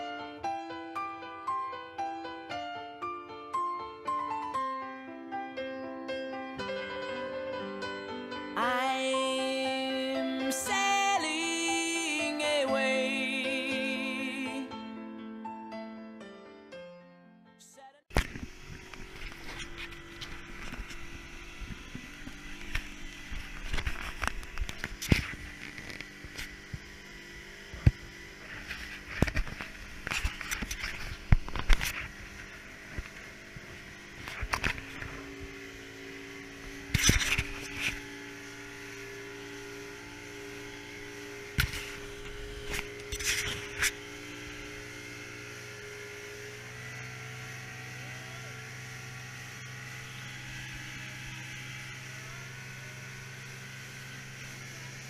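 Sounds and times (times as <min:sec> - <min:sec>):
boat motor running: 0:06.6 - 0:15.0, 0:18.0 - 0:55.0.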